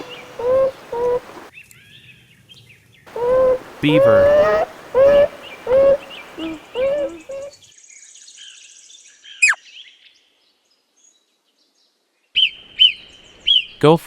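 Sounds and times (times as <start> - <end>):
beaver whining cries: 0.0 - 1.5, 3.1 - 7.5
faint high chirps: 3.1 - 7.5.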